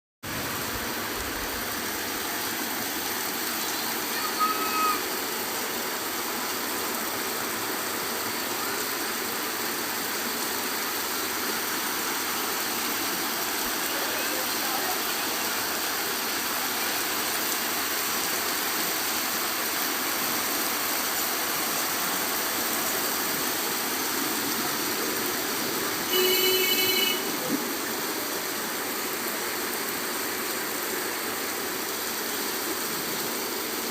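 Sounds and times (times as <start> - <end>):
steady rain falling: 0.2 - 33.9
loud pitched call: 3.8 - 5.1.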